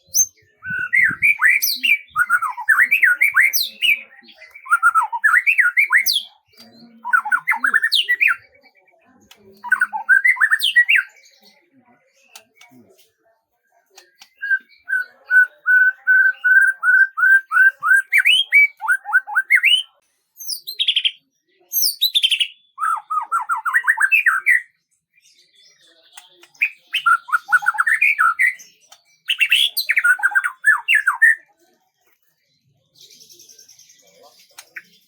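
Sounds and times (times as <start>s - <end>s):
songbird singing: 0.0s - 35.0s.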